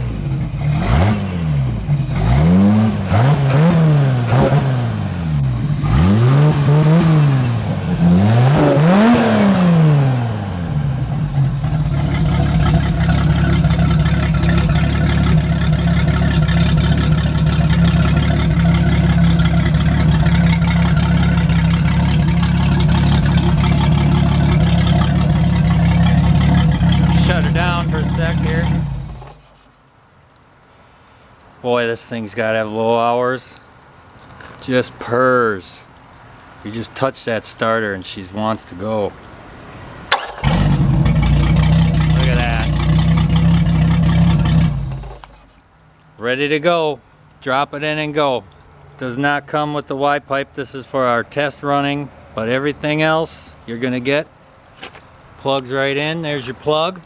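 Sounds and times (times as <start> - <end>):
boat engine revving: 0.0 - 29.7, 39.6 - 45.6.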